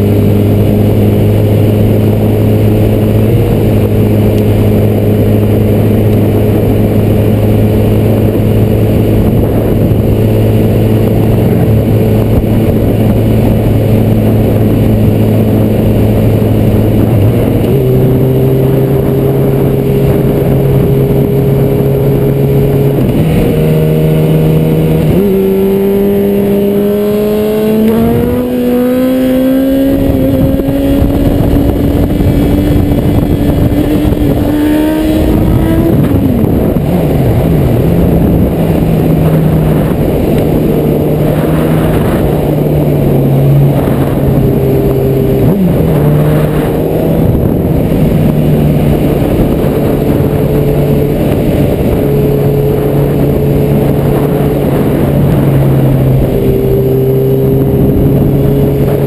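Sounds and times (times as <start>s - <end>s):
motorcycle engine accelerating: 0.0s - 59.0s
wind rush: 0.0s - 59.0s.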